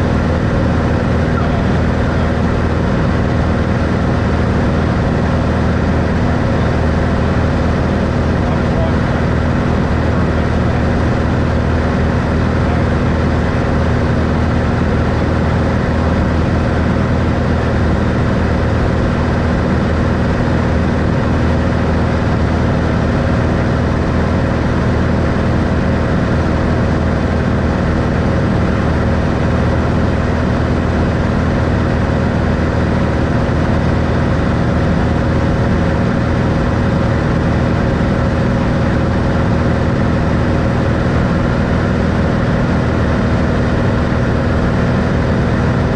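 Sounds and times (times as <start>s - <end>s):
propeller plane engine drone: 0.0s - 45.9s.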